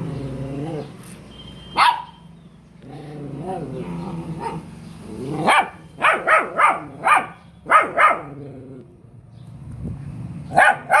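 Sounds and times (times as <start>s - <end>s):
dog barking: 1.8s - 2.2s, 4.4s - 4.7s, 5.4s - 8.4s, 10.5s - 11.0s.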